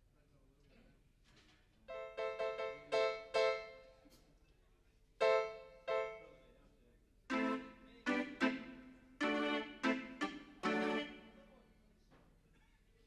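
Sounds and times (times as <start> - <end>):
piano chords: 7.3 - 11.5.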